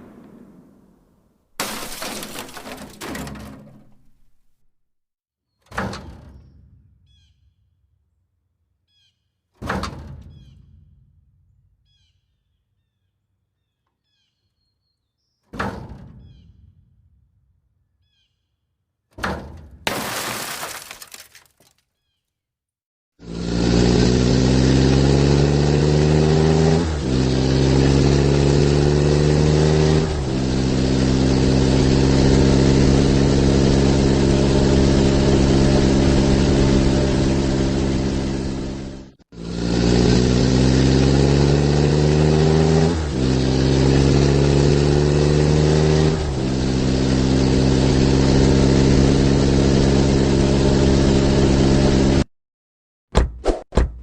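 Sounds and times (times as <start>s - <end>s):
truck engine accelerating: 23.2s - 52.3s.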